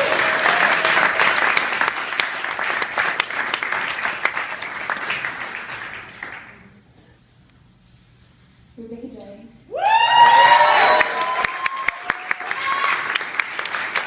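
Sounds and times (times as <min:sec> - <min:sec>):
audience applauding: 0:00.0 - 0:06.8, 0:09.8 - 0:14.0.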